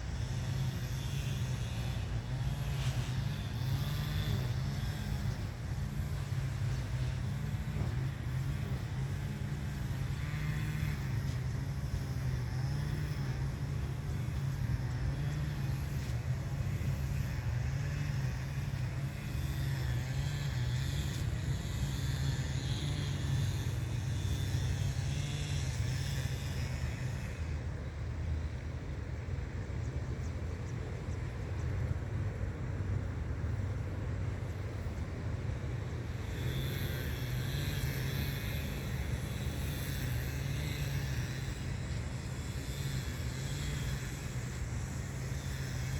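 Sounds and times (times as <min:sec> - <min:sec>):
low outdoor rumble: 0:00.0 - 0:45.9.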